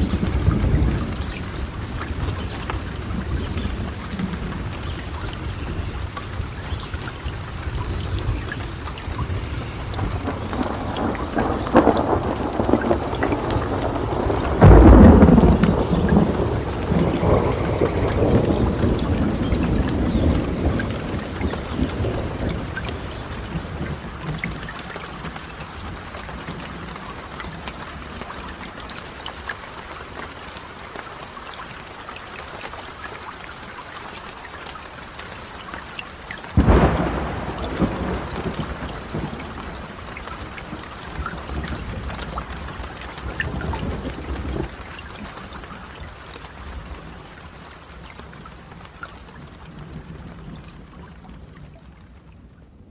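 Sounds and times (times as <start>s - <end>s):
steady rain falling: 0.0s - 52.9s
thunderclap rumbling: 7.6s - 24.6s, 36.6s - 44.8s.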